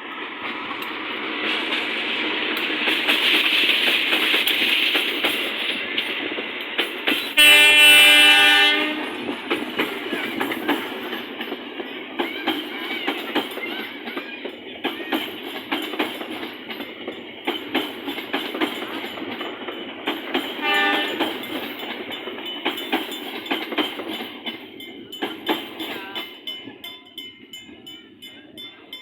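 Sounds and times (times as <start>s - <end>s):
train rolling rumble: 0.0s - 29.0s
train wheels clacking over rail joints: 0.2s - 29.0s
train horn blast: 7.4s - 9.3s, 20.6s - 21.3s.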